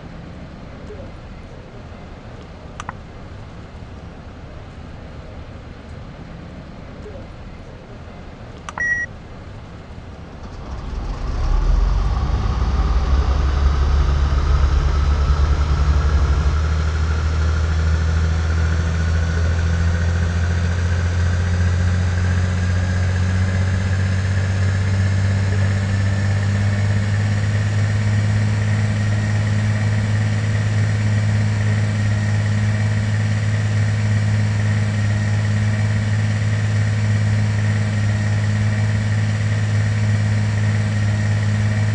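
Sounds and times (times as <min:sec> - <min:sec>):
jet engines spooling up: 0:10.4 - 0:41.9.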